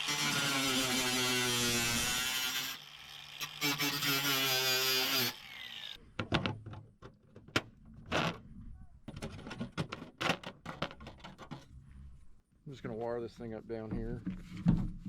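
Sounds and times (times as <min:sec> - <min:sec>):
handheld power tool running: 0:00.0 - 0:06.0.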